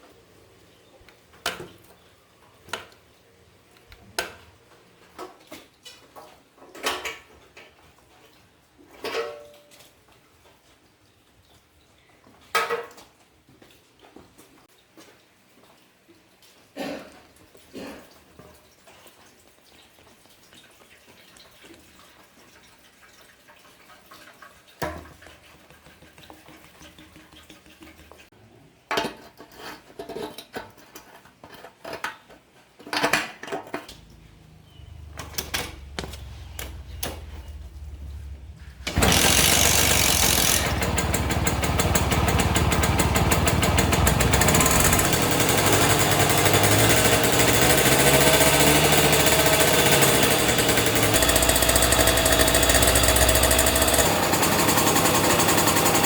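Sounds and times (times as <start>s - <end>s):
low hum: 33.9s - 45.5s
small engine running: 34.0s - 56.0s.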